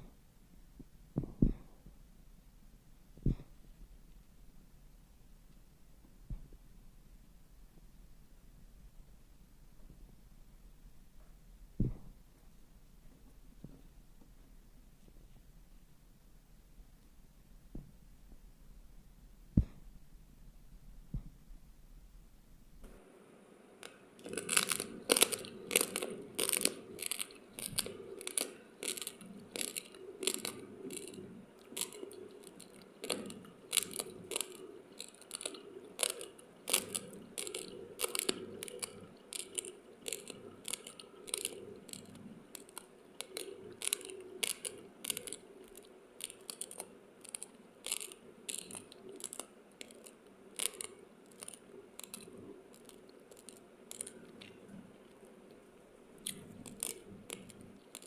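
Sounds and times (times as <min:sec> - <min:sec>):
dry rice grains being chewed: 0:23.8 - 0:58.0.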